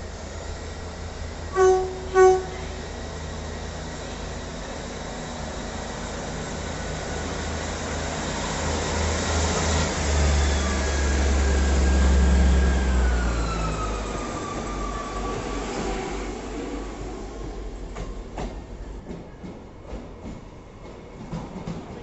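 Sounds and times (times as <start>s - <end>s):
diesel train engine rumble: 0.0s - 22.0s
train whine falling in pitch: 1.5s - 2.9s.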